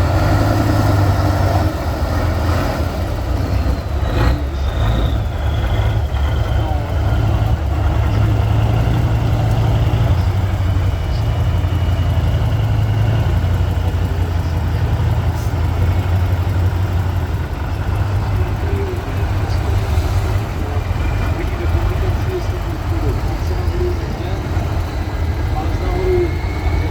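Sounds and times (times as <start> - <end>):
diesel truck engine droning: 0.0 - 26.9.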